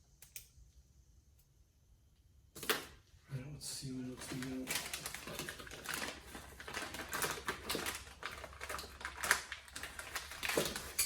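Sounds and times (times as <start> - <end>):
packaging crinkling and clicking: 4.1 - 11.0.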